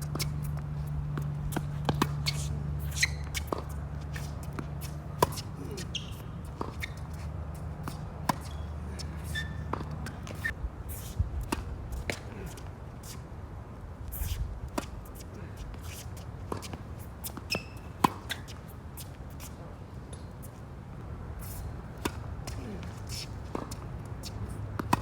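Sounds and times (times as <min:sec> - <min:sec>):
footsteps scuffing on court: 0:00.0 - 0:13.2, 0:14.1 - 0:19.6, 0:21.4 - 0:25.0
racquet hitting tennis ball: 0:24.5 - 0:25.0.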